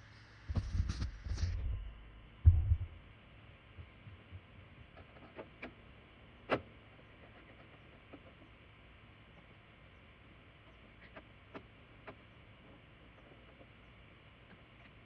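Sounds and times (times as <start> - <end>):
low thump: 2.4 - 3.0.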